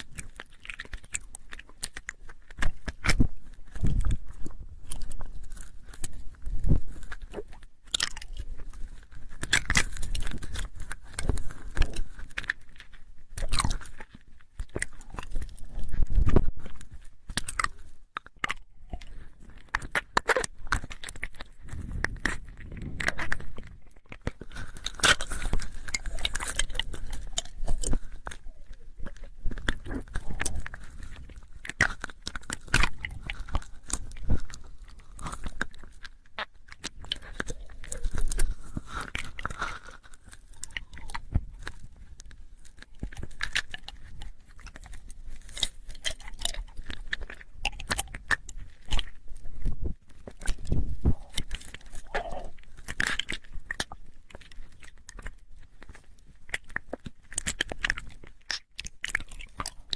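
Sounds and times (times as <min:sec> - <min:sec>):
mouth clicks: 0:13.4 - 0:55.4, 0:56.0 - 0:59.9.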